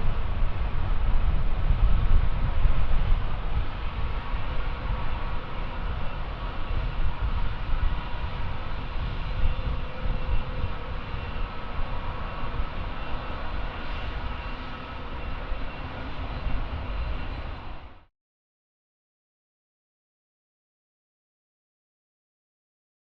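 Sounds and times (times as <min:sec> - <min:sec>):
jet engines running: 0:00.0 - 0:18.1.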